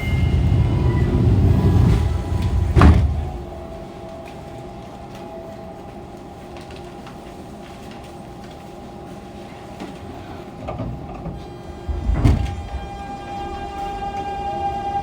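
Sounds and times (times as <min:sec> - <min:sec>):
low rumble: 0:00.0 - 0:03.8.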